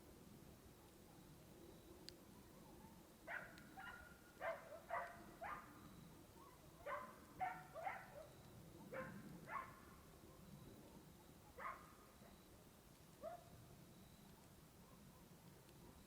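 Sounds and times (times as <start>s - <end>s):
dog barking: 2.4s - 5.8s, 6.4s - 10.5s, 11.2s - 12.5s, 13.2s - 13.5s.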